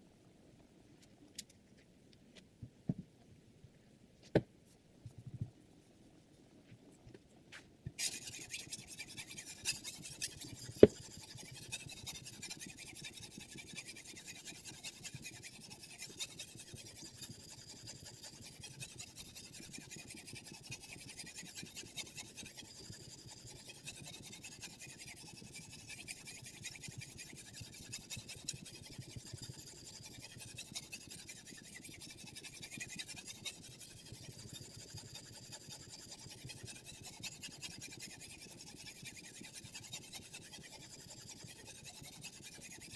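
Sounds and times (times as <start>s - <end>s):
sharpening stone scraping knife: 8.0s - 23.0s, 27.4s - 42.9s.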